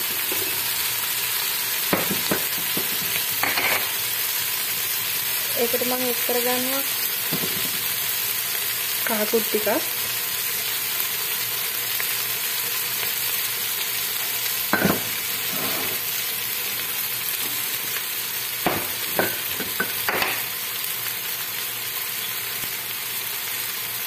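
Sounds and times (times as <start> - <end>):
onions sizzling in oil: 0.0 - 24.0
spoon scraping a pot: 15.4 - 16.0.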